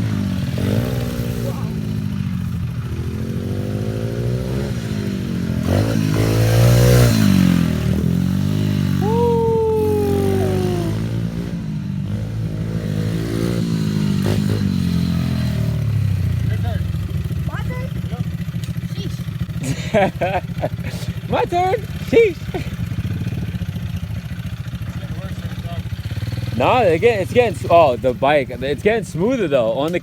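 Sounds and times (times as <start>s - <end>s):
pit bike engine revving: 0.0s - 30.0s.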